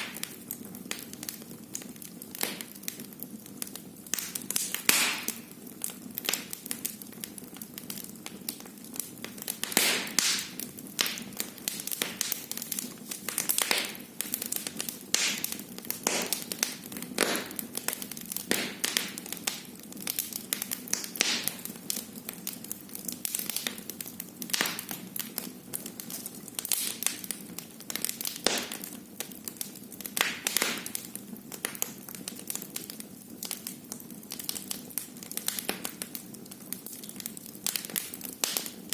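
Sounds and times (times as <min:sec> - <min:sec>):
wood fire crackling and popping: 0:00.0 - 0:38.9
hiss of flames: 0:09.4 - 0:19.6.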